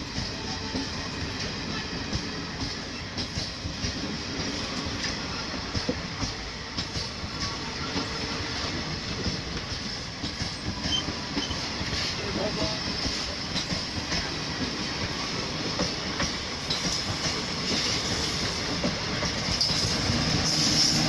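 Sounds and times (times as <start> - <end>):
train wheels clattering: 0.0 - 21.0.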